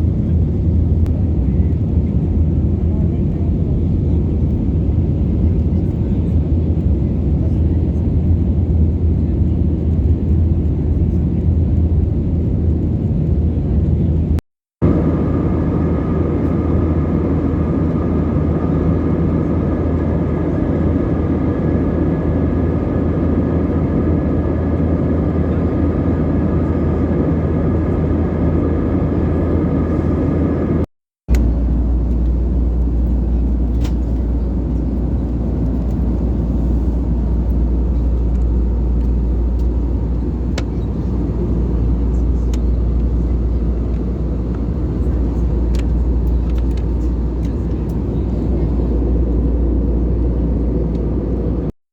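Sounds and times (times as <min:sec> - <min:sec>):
jet engines humming: 0:12.6 - 0:51.7
air rushing along fuselage: 0:14.8 - 0:51.7.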